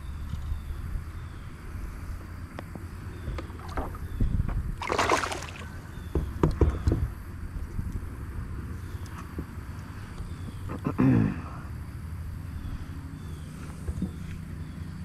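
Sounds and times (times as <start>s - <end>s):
light knocks on hull: 3.2s - 7.1s
water splashing against kayak: 3.3s - 4.1s, 4.8s - 5.8s.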